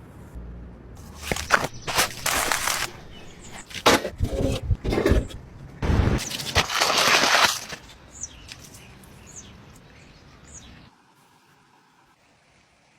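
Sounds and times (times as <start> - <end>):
small birds chirping: 1.4 - 3.7, 7.9 - 10.9.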